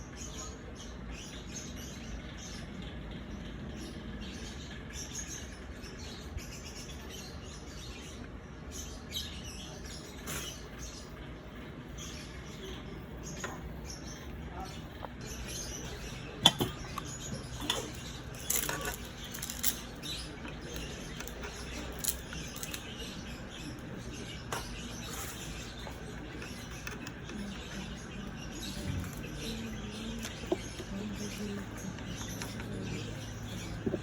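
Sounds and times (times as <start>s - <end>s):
steady low hum: 0.0s - 34.0s
objects clicking and knocking: 16.4s - 22.9s.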